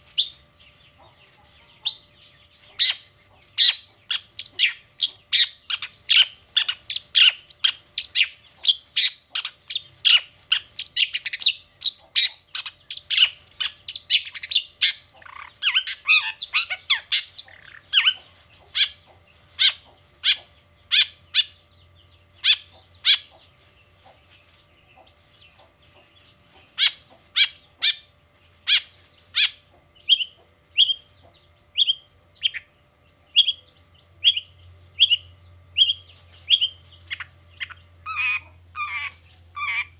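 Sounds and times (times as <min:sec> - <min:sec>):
shrike chattering and calling: 0:02.7 - 0:21.6, 0:26.8 - 0:31.0, 0:35.8 - 0:39.9.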